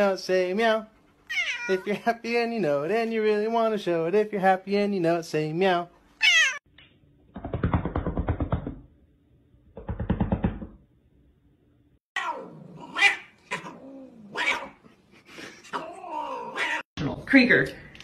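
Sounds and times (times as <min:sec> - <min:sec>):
cats meowing and yowling: 0:01.3 - 0:01.8, 0:06.2 - 0:06.6, 0:12.2 - 0:14.7, 0:15.8 - 0:16.9.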